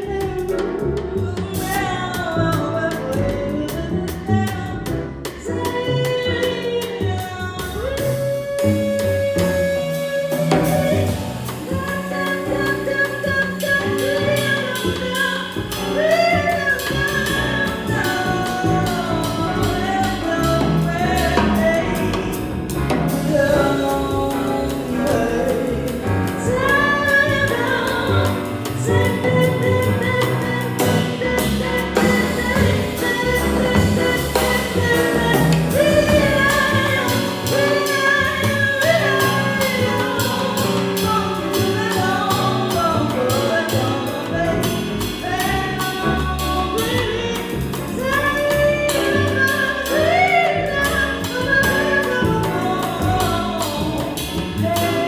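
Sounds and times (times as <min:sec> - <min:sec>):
jazz instrumental accompaniment: 0:00.0 - 0:55.0
woman singing wordless lines: 0:23.1 - 0:54.0.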